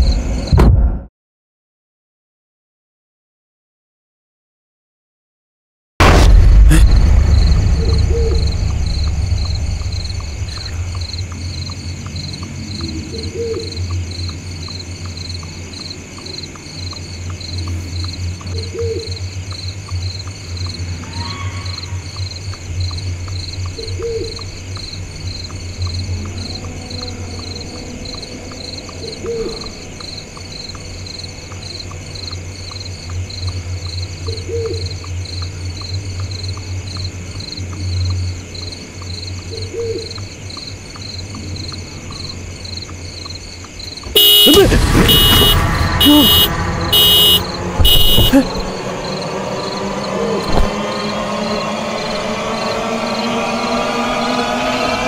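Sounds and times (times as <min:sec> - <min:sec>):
low drone: 0:06.0 - 0:14.6, 0:44.7 - 0:55.0
insects chirring: 0:07.0 - 0:53.9.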